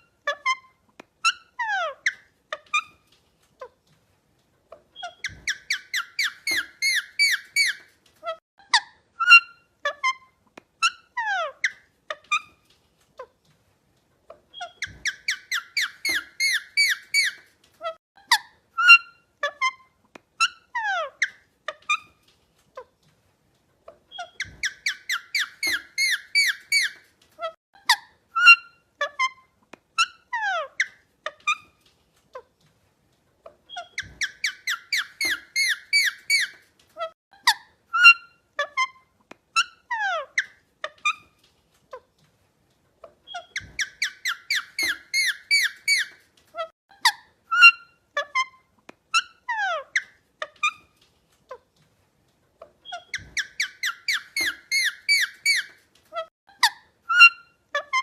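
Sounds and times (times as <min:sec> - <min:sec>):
parrot chirps and whistles: 0:05.0 - 0:07.8, 0:14.5 - 0:17.4, 0:24.2 - 0:27.0, 0:33.7 - 0:36.6, 0:43.3 - 0:46.2, 0:52.8 - 0:55.8.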